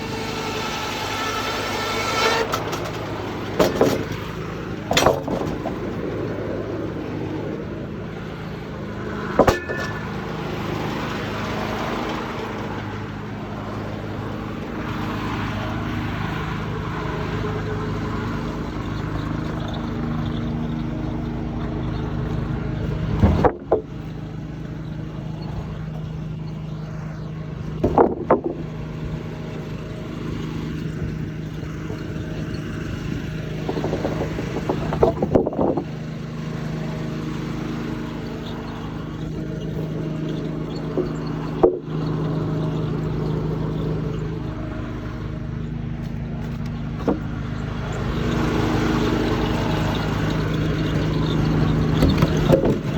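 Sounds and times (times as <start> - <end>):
muffled diesel engine running: 0.0 - 52.9
loud clattering knocks: 2.2 - 6.0, 9.3 - 10.5, 23.0 - 24.0, 27.8 - 28.8, 33.6 - 36.0, 51.8 - 52.9.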